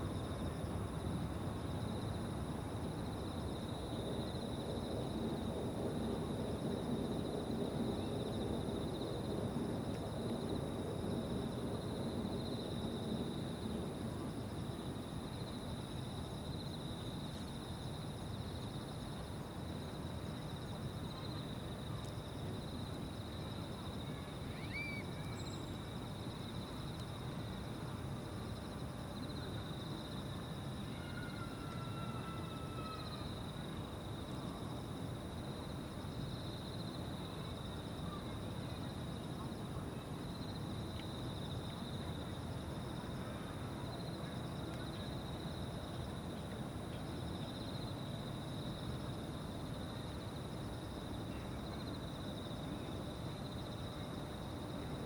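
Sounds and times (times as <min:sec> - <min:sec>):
insect chorus trilling: 0:19.9 - 0:27.6, 0:28.5 - 0:35.6.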